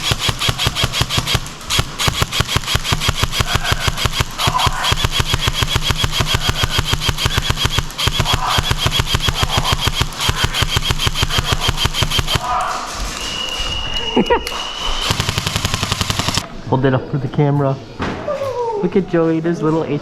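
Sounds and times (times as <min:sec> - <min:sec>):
airsoft rifle full-auto bursts: 0:00.0 - 0:12.4, 0:15.0 - 0:16.4.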